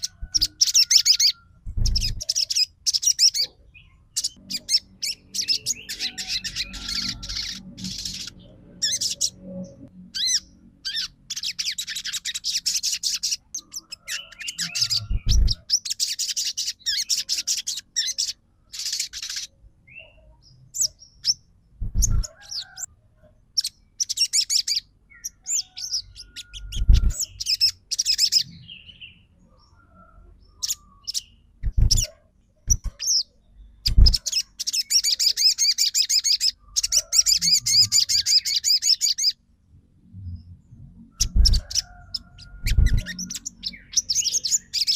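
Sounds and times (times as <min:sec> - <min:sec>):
bird chattering trills: 0:00.0 - 0:20.2, 0:20.8 - 0:22.9, 0:23.6 - 0:28.6, 0:30.6 - 0:39.4, 0:41.2 - 0:44.9
low thumps: 0:21.8 - 0:22.3.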